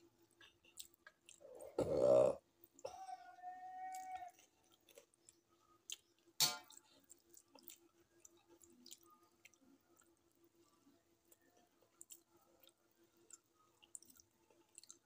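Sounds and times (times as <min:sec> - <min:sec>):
faint steady hum: 0:00.0 - 0:15.0
soft chewing: 0:00.0 - 0:15.0.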